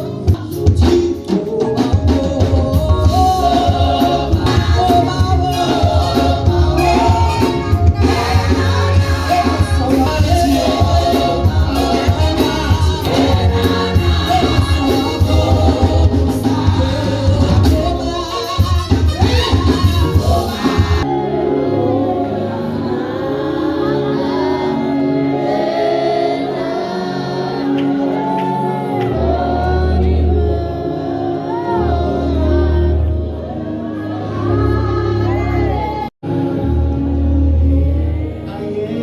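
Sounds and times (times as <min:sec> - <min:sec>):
band with heavy pulsing bass: 0:00.0 - 0:27.3
gospel singing: 0:00.0 - 0:39.0.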